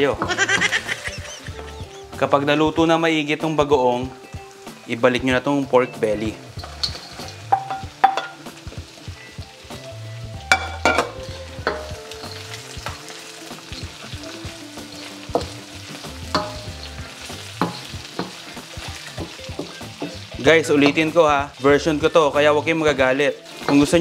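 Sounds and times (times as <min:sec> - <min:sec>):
meat sizzling in a wok: 0:00.0 - 0:24.0
wooden spoon knocking on wok: 0:00.2 - 0:00.9, 0:06.8 - 0:08.4, 0:10.5 - 0:12.0, 0:16.3 - 0:16.9, 0:17.6 - 0:20.2.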